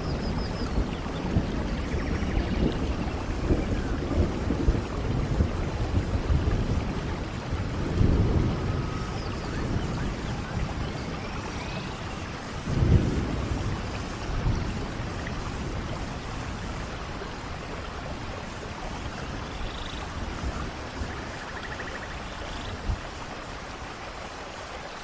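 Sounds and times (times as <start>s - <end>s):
thunder rolling: 0.0s - 17.0s
steady rain: 0.0s - 25.0s.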